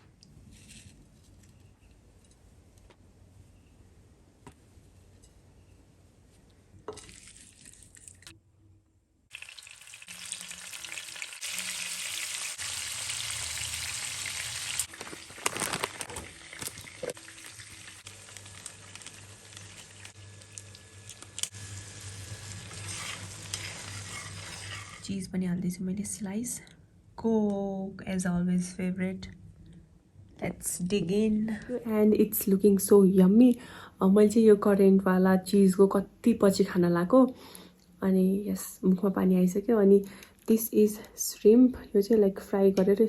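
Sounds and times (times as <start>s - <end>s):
food sizzling in frying pan: 9.3s - 25.1s.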